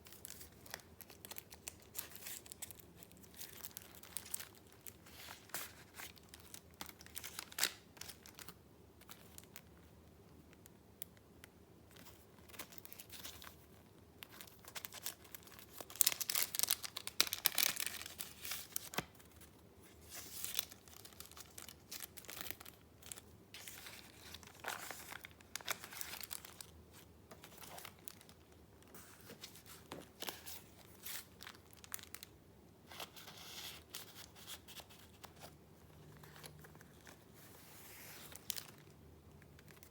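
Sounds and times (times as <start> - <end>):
paper rustling and crinkling: 0.1 - 9.5, 20.0 - 32.2, 32.9 - 38.9.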